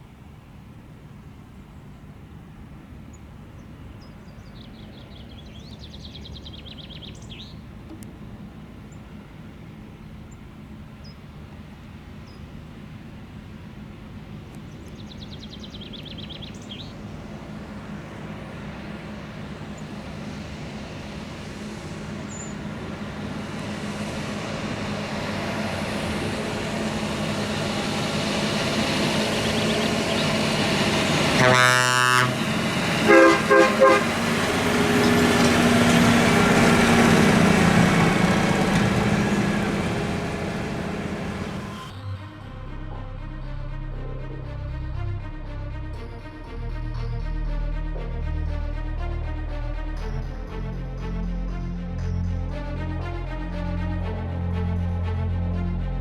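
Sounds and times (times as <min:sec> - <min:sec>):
tractor engine hum: 0:00.0 - 0:56.0
tractor horn blasts: 0:22.1 - 0:41.9.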